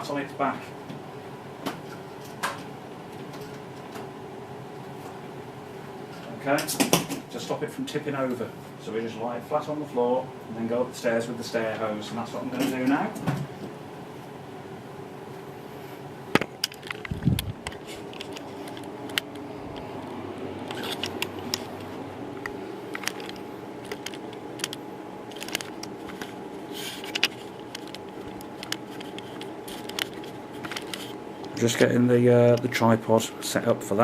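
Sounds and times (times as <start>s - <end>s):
faint steady hum: 0.0s - 34.0s
tripod clicks and rattles: 16.4s - 31.9s.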